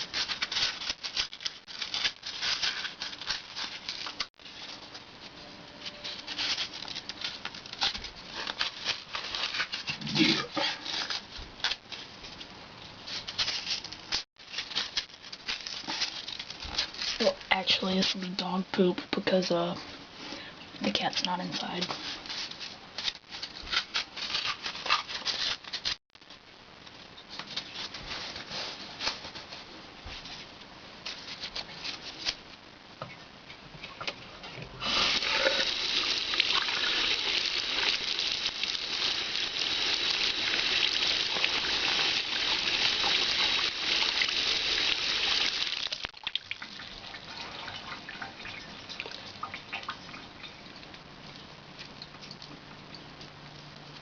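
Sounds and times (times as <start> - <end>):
running water: 34.8 - 50.9.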